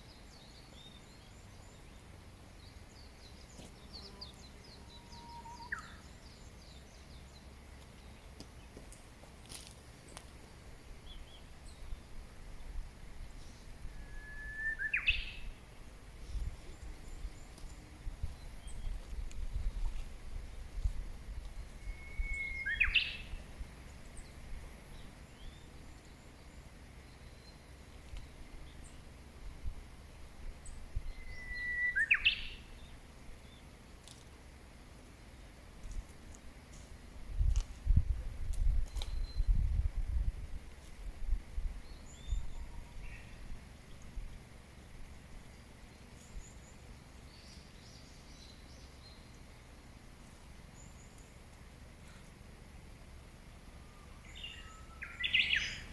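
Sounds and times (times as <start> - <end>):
small birds chirping: 0.0 - 12.0, 14.6 - 29.2, 30.6 - 34.3, 41.8 - 52.5, 53.7 - 55.9
faint high bird chirps: 2.6 - 7.2, 13.4 - 15.6, 21.6 - 23.4, 30.6 - 32.9, 38.8 - 39.7, 41.8 - 43.5, 53.7 - 55.9
birds calling: 53.7 - 55.9.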